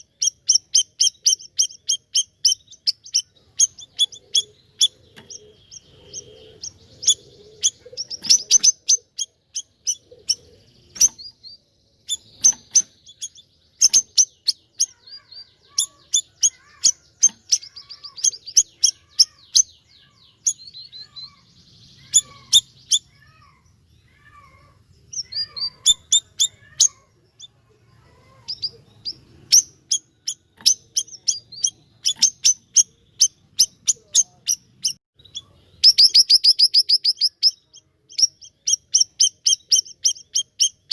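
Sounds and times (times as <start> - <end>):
songbird singing high chirps: 0.0 - 40.9.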